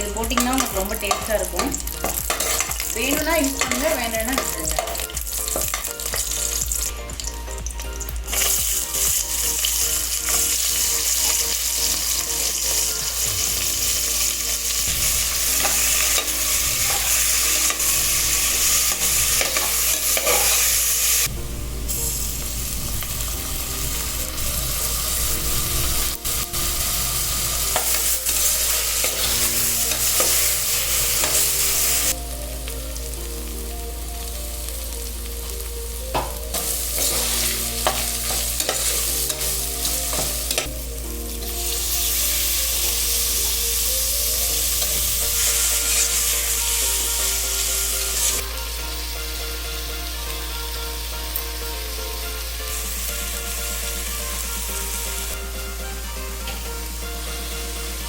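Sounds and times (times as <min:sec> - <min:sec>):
food sizzling in a pan: 0:00.0 - 0:58.0
spoon stirring and scraping pan: 0:00.3 - 0:06.3, 0:18.7 - 0:20.8, 0:36.6 - 0:40.7.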